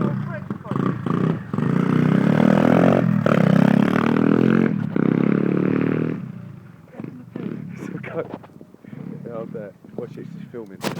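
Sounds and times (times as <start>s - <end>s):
motorbike engine revving hard: 0.0s - 8.0s.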